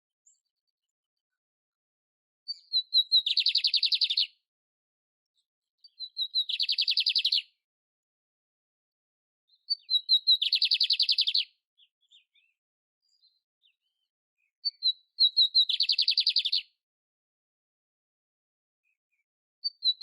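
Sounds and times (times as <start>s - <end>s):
canary singing: 2.5s - 4.4s, 5.9s - 7.6s, 9.5s - 12.5s, 14.6s - 16.7s.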